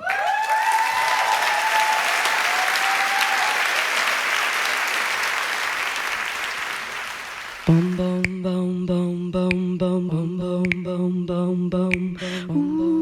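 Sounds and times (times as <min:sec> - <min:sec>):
high cheer: 0:00.0 - 0:07.5
audience applauding: 0:00.0 - 0:07.9.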